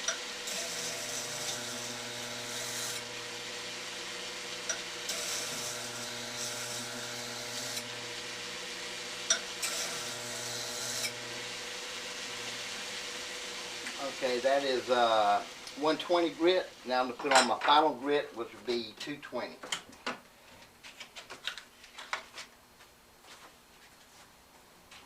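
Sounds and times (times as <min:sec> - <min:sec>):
belt grinder motor hum: 0:00.0 - 0:14.2
steel grinding hiss: 0:00.0 - 0:17.1.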